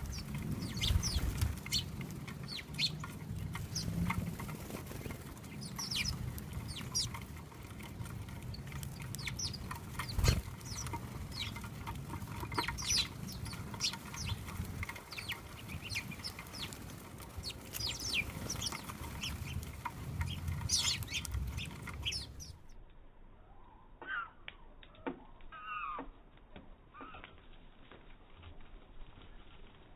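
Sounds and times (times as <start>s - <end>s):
small birds chirping: 0.0s - 22.8s.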